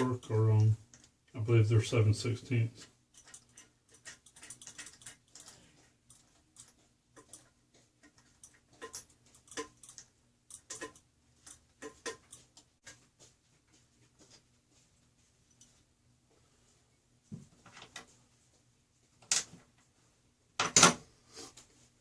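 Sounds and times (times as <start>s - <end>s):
wrench metal clicks and taps: 3.2s - 5.5s.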